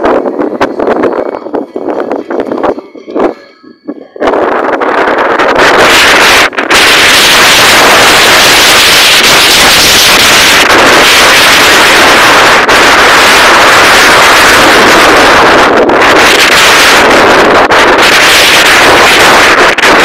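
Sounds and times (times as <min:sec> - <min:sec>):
wind blasting on microphone: 0:00.0 - 0:20.0.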